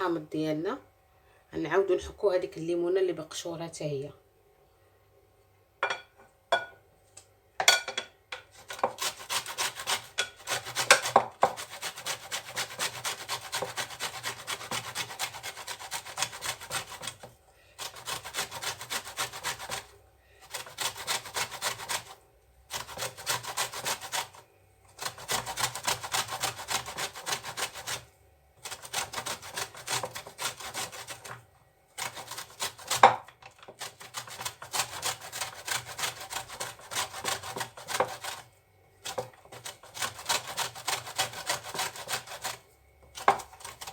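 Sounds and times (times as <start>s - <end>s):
orange rasping on a grater: 8.6s - 31.4s, 32.0s - 43.9s.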